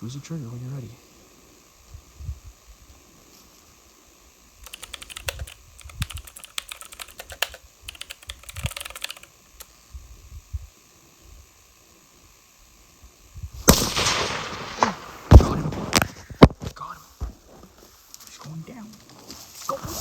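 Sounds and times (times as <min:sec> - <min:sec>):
small clicks and taps: 0:04.7 - 0:09.3.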